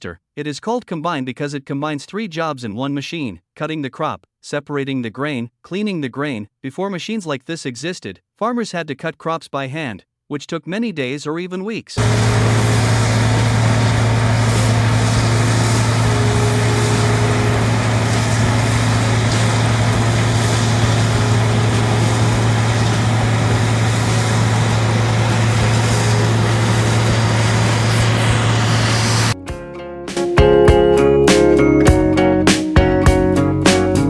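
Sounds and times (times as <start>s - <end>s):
combine harvester engine drone: 12.0s - 29.4s
mechanical rush: 12.0s - 29.4s.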